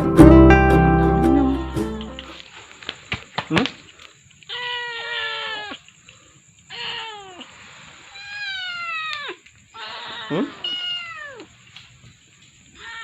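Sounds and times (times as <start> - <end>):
kitten meowing: 8.2 - 11.5.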